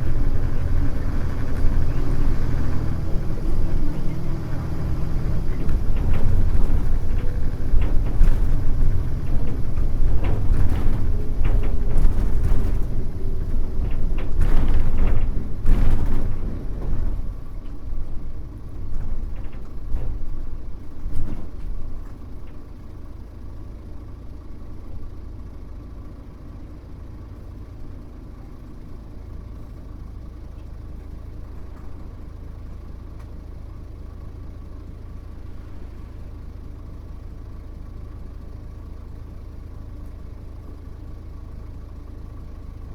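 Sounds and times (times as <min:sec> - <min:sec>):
rattles: 0:00.0 - 0:23.5
bus diesel engine: 0:00.0 - 0:42.9.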